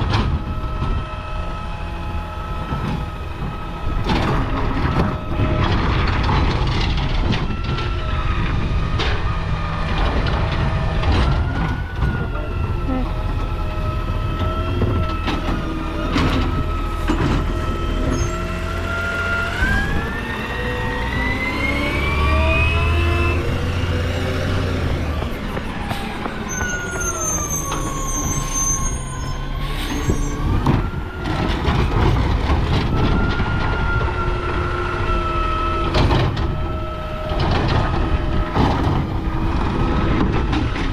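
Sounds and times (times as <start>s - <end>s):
garbage truck engine and hydraulics: 0.0s - 40.9s.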